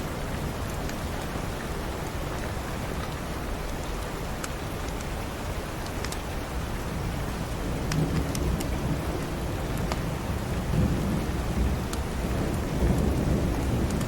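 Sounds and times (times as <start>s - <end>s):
steady rain: 0.0s - 14.0s
low rumble of thunder: 7.0s - 14.0s.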